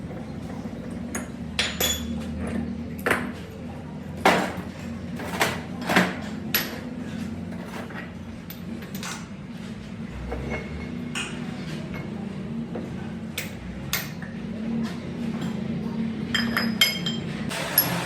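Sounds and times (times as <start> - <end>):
sharp metal knocks and clinks: 1.1 - 2.2.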